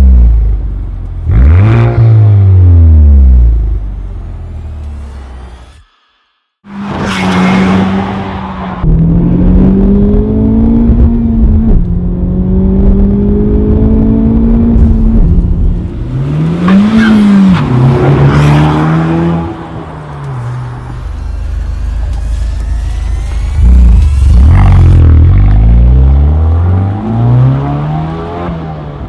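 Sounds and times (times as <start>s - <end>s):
car engine accelerating through gears: 21.2s - 29.0s.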